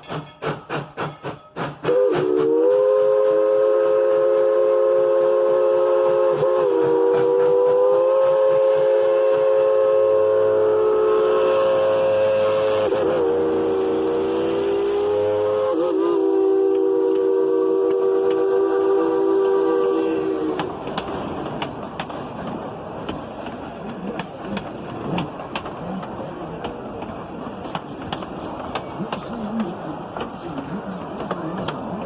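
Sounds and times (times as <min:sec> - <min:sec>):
steam locomotive whistle: 0:00.0 - 0:20.8.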